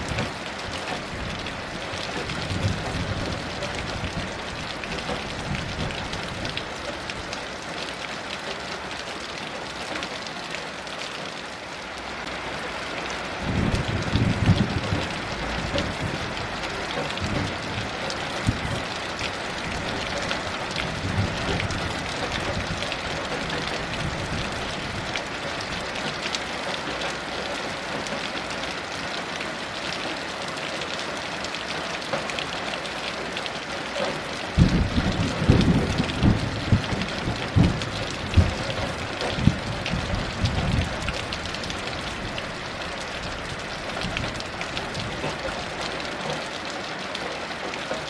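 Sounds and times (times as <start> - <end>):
thunder rumbling: 0.0 - 6.7, 13.4 - 18.9, 19.5 - 25.9, 34.5 - 45.4
heavy rain hissing: 0.0 - 48.0.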